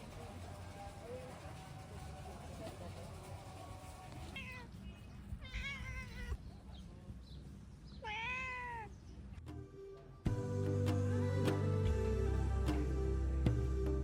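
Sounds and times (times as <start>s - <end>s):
animal meow-like cries: 5.4s - 6.4s, 8.0s - 8.9s.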